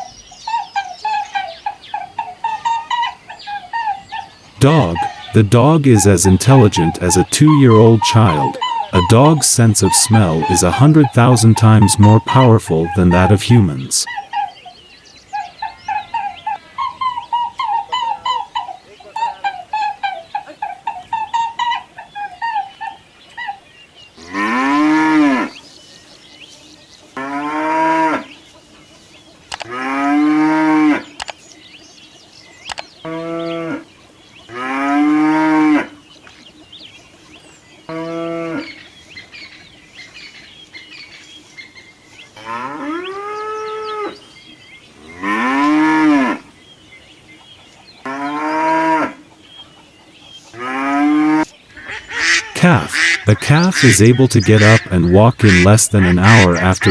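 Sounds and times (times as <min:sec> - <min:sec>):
cattle mooing: 0:04.6 - 0:13.4.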